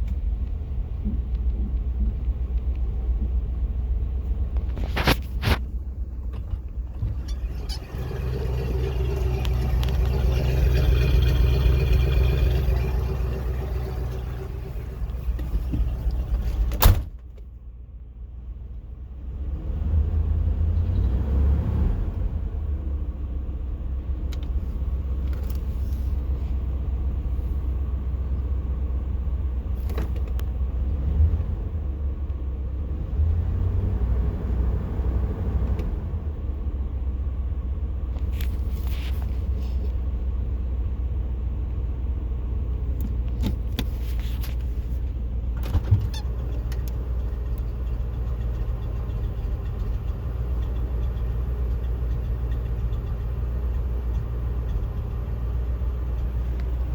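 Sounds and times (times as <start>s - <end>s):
misfiring car engine running: 4.8s - 17.0s.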